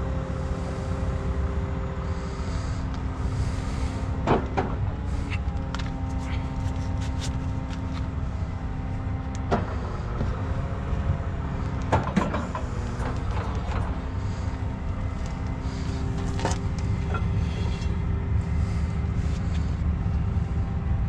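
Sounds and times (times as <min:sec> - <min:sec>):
truck diesel engine idling: 0:00.0 - 0:21.0.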